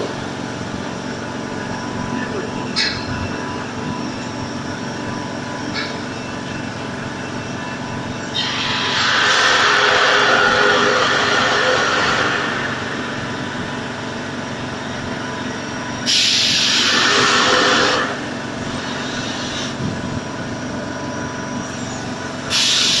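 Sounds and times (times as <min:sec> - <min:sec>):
air compressor running: 0:00.0 - 0:23.0
loud air hiss: 0:08.4 - 0:13.4, 0:16.0 - 0:19.8, 0:22.5 - 0:23.0.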